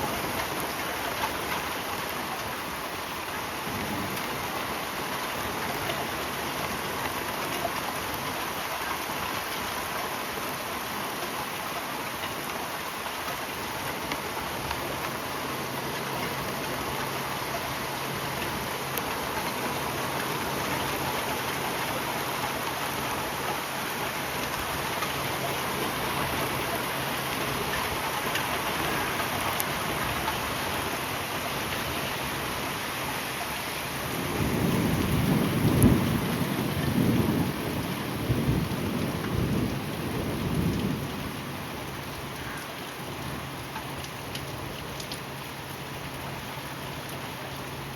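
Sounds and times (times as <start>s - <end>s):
heavy rain falling: 0.0s - 47.9s
low roll of thunder: 3.5s - 4.9s, 34.0s - 41.6s.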